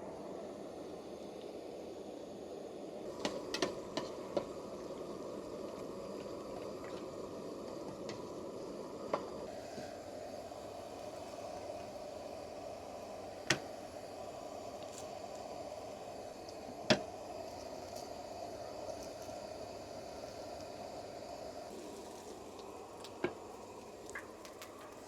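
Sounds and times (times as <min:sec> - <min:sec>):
flowing water: 0:21.7 - 0:25.0.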